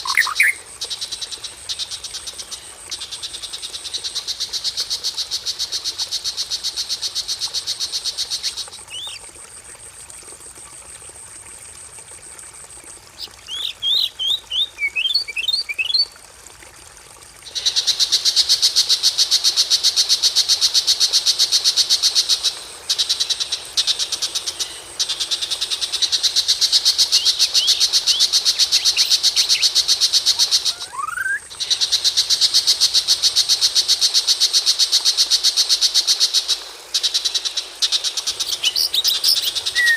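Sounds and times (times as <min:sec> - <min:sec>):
sharp bird chirps: 0:00.0 - 0:00.6.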